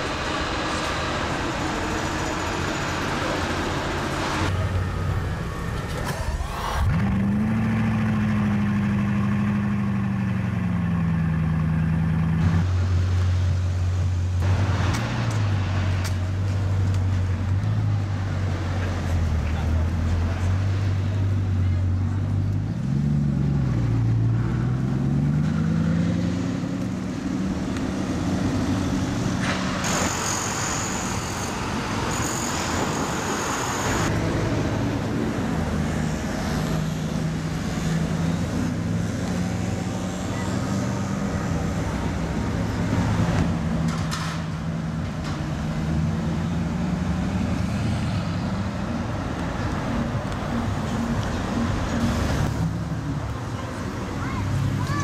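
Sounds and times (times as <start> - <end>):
traffic noise: 0.0 - 55.0
car engine pulling away: 14.4 - 29.8.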